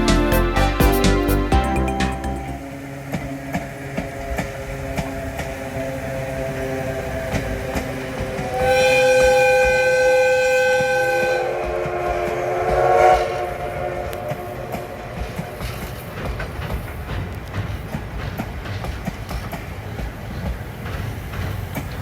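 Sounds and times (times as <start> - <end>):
train rolling over rails: 0.0 - 22.0
steam whistle blast: 8.4 - 15.8.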